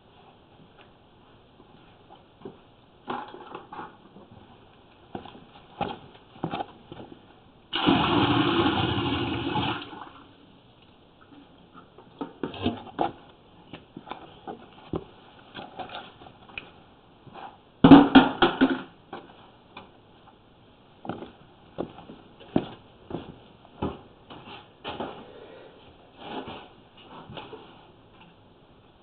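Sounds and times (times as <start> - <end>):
water pouring into a drain: 7.7 - 10.3.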